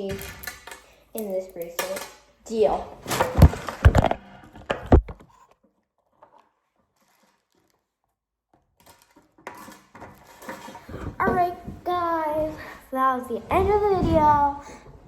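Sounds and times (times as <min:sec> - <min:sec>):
toys knocking and clattering: 0:00.0 - 0:05.4, 0:08.8 - 0:12.6
faint rustling: 0:08.8 - 0:15.0.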